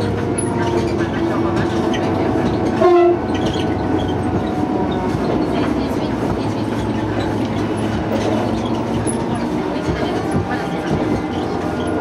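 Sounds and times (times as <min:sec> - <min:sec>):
train wheels rumbling and rattling: 0:00.0 - 0:12.0
train horn: 0:02.8 - 0:03.3.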